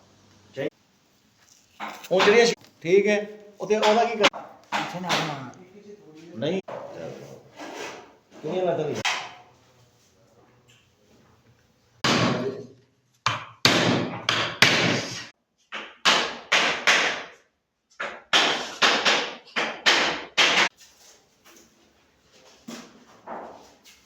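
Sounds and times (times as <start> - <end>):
sharp knocks on wood: 3.8 - 5.4, 13.2 - 15.0, 15.7 - 17.4, 18.0 - 20.7.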